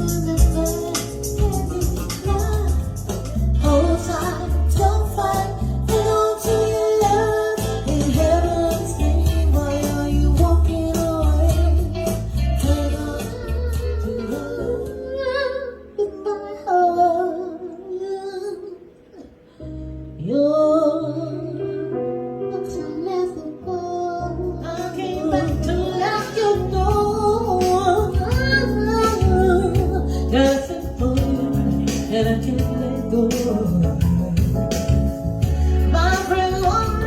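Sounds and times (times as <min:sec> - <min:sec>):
backing track with bass and beat: 0:00.0 - 0:15.3, 0:24.5 - 0:37.0
woman singing: 0:00.0 - 0:19.3, 0:20.1 - 0:34.9, 0:35.8 - 0:37.0.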